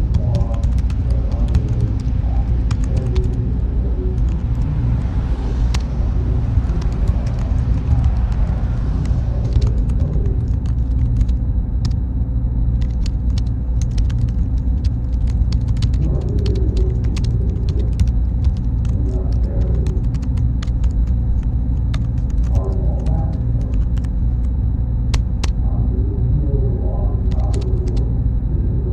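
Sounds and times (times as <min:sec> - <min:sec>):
faint high whine: 0:00.0 - 0:28.9
machinery and cooling fans rumbling: 0:00.0 - 0:28.9
small clicks and ticks: 0:12.8 - 0:22.6.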